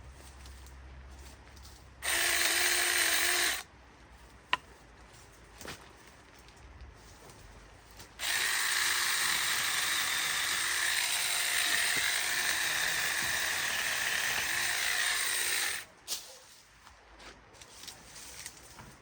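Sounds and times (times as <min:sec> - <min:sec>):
chainsaw running: 0:02.0 - 0:03.7, 0:08.2 - 0:15.9.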